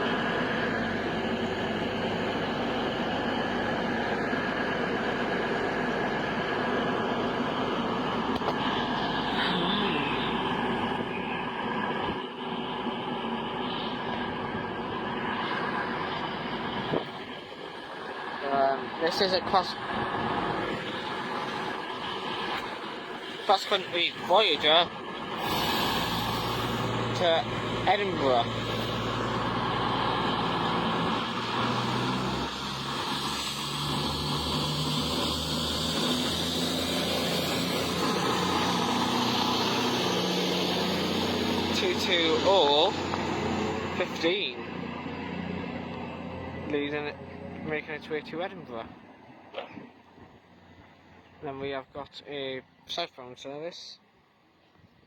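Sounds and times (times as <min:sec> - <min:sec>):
train diesel engines humming: 0:00.0 - 0:51.4
broad hiss: 0:25.3 - 0:27.2.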